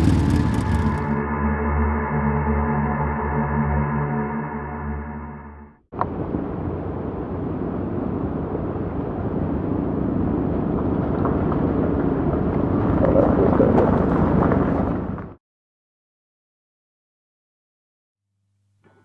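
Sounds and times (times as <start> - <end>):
motorcycle engines running: 0.0 - 1.2.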